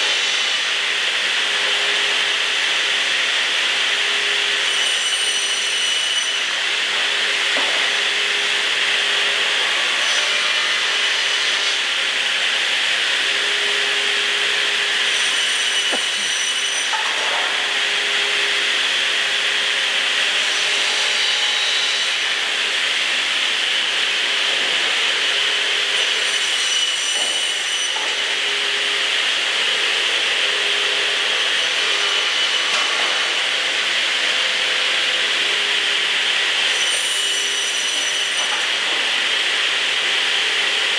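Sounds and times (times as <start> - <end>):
saw machine hissing: 7.4 - 19.6.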